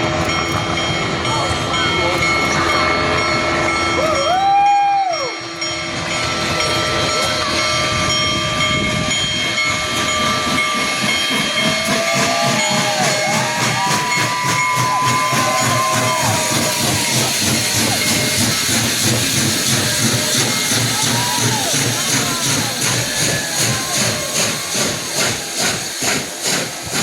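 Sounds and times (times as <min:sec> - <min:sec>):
train rumbling and clanking: 0:00.0 - 0:27.0
steam hissing: 0:02.0 - 0:27.0
steam locomotive whistle: 0:09.6 - 0:27.0.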